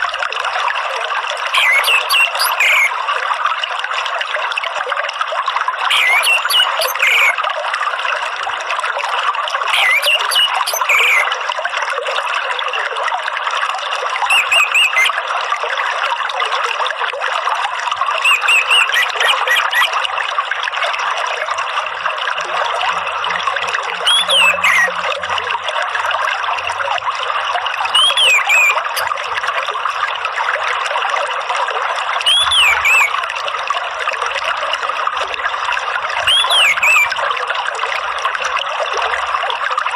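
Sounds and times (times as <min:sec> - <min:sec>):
trickling water: 0:00.0 - 0:39.9
thrush whistling: 0:09.8 - 0:11.2, 0:14.3 - 0:15.1, 0:18.2 - 0:19.9, 0:28.0 - 0:29.1, 0:32.3 - 0:33.1, 0:36.3 - 0:37.1.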